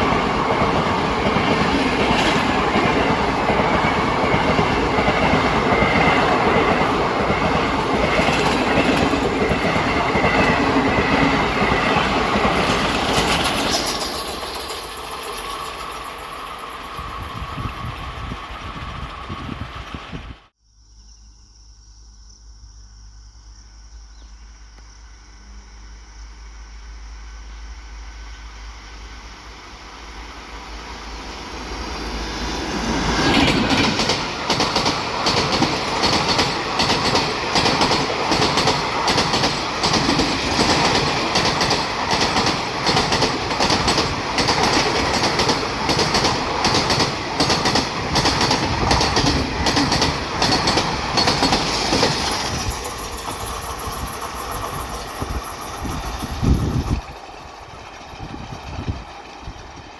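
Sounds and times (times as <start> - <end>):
train wheels clattering over rail joints: 0.0 - 16.2, 32.7 - 59.9
train rumble approaching: 0.0 - 20.6, 25.3 - 59.9.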